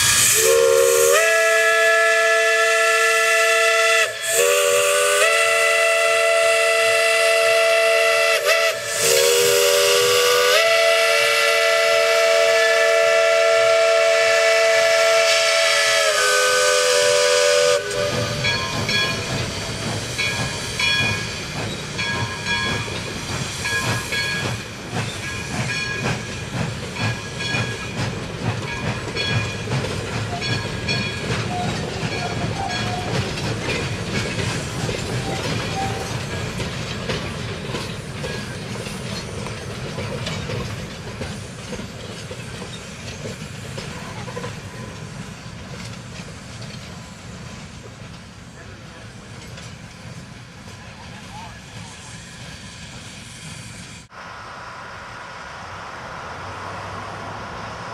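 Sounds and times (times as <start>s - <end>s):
locomotive whistle blast: 0.0s - 18.8s, 35.7s - 36.1s
train wheels clacking on rails: 0.0s - 53.9s.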